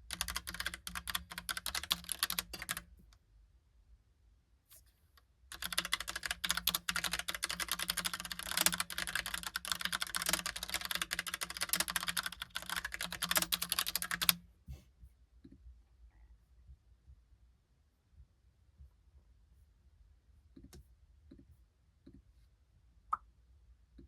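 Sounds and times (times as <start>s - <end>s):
fast typing on mechanical keyboard: 0.0s - 2.9s, 5.5s - 14.4s.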